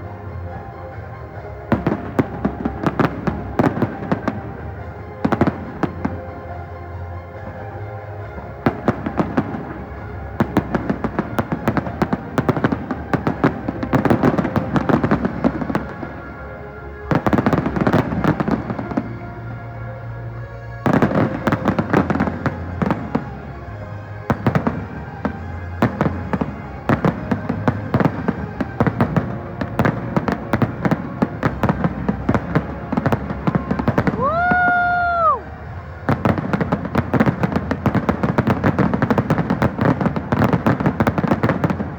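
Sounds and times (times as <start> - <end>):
fireworks bangs and crackles: 0.0 - 41.9
music playing: 0.0 - 41.9.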